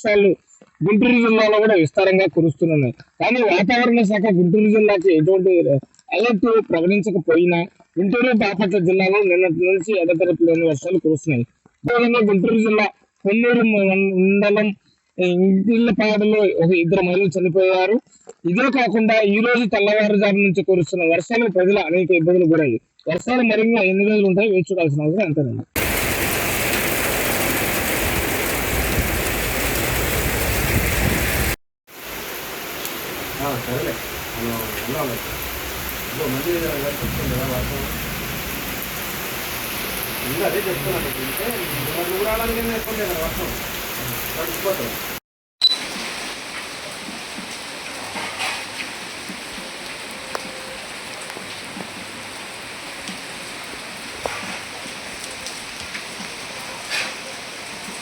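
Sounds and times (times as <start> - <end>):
heavy rain pouring: 25.8 - 58.0.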